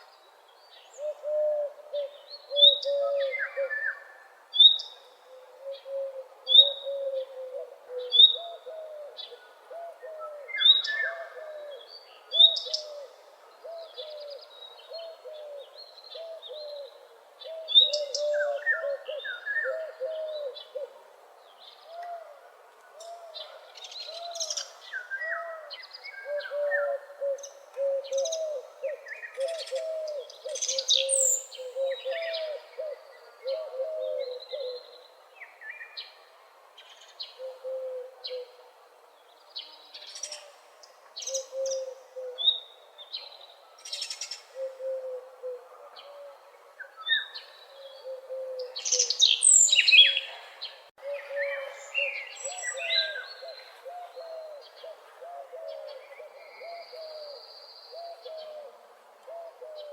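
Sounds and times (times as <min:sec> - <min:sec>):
bird hooting: 0:25.2 - 0:35.0, 0:37.4 - 0:38.6, 0:44.5 - 0:46.4, 0:47.8 - 0:50.4.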